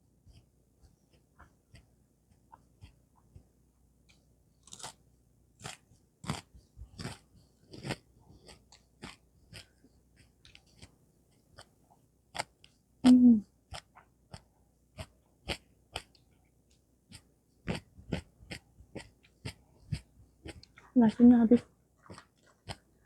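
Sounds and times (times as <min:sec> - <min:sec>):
chewing mouth sounds: 0:05.6 - 0:10.9, 0:17.1 - 0:22.9
person humming mm: 0:13.0 - 0:13.5.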